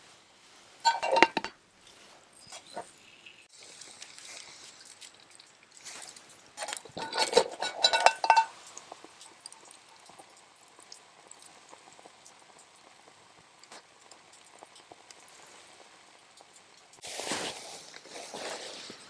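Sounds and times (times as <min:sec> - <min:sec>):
tableware clinking: 0:00.8 - 0:01.5, 0:06.6 - 0:08.5.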